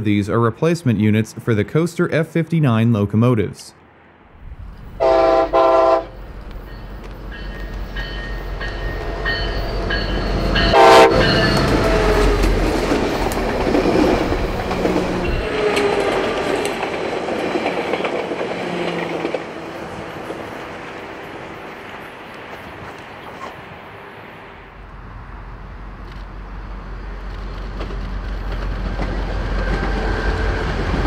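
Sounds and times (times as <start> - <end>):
train wheels on rails: 4.4 - 31.0
train horn blasts: 5.0 - 6.2, 10.6 - 12.4.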